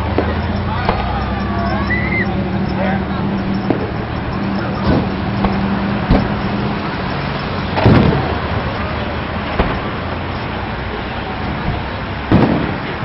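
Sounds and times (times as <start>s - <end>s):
distant fireworks bangs: 0.0s - 13.0s.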